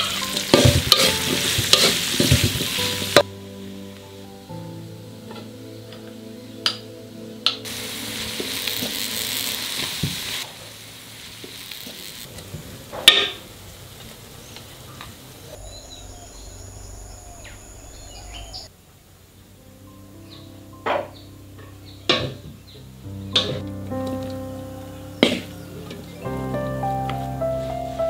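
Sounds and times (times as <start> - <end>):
tomato sizzling in hot oil: 0.0 - 3.3, 7.6 - 12.4.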